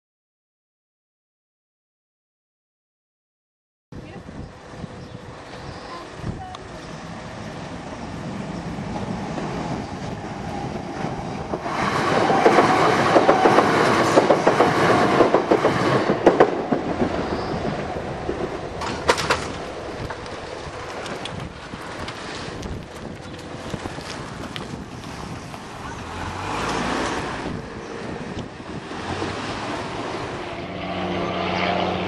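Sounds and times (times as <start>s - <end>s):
train wheels clattering over rail joints: 11.4s - 25.8s.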